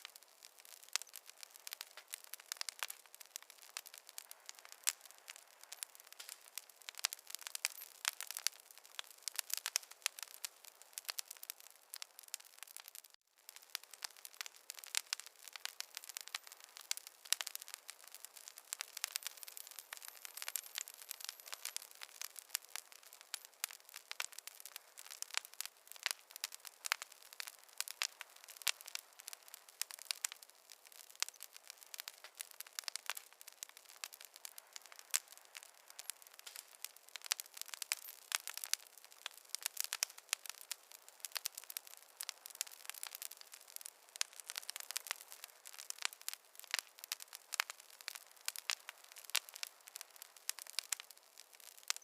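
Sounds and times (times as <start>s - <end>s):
fire crackling: 0.0s - 52.0s.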